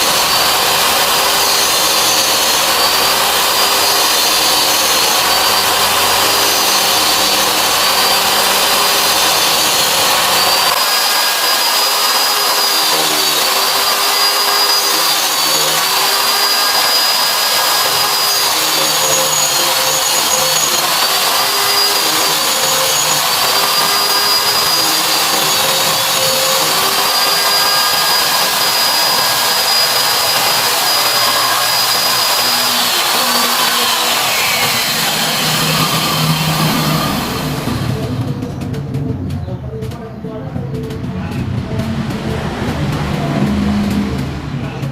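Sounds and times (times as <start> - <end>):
circular saw motor whining: 0.0 - 38.7.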